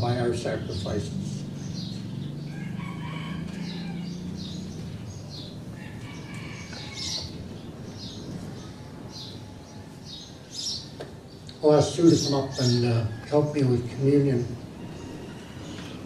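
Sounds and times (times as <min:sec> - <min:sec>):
steady low hum: 0:00.0 - 0:12.8
small birds chirping: 0:00.0 - 0:16.0.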